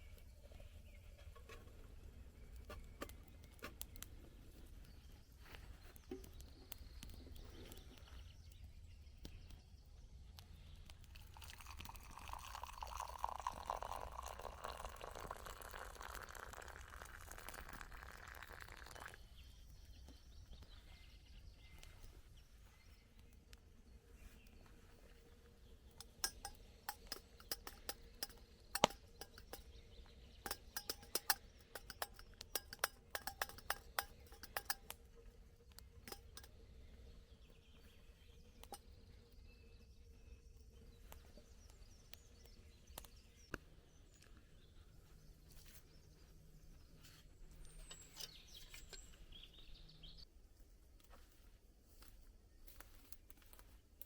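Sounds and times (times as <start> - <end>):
liquid pouring: 11.0 - 19.3, 26.0 - 29.7, 30.5 - 34.9, 36.1 - 36.5
sharp clicks and ticks: 25.9 - 29.8, 30.4 - 35.1, 35.7 - 36.6.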